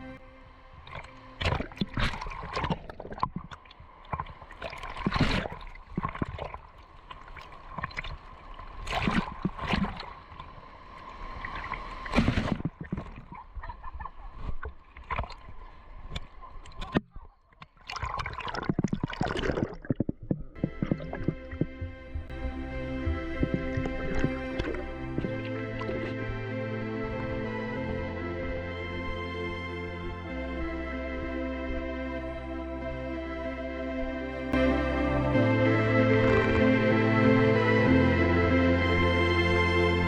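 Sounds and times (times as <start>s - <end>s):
seawater splashing and sloshing: 0.7s - 26.4s.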